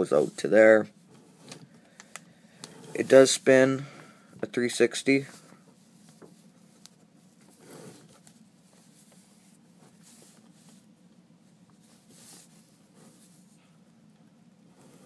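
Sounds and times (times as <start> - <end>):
soft rubbing and rustling: 2.6 - 3.8, 4.6 - 15.0.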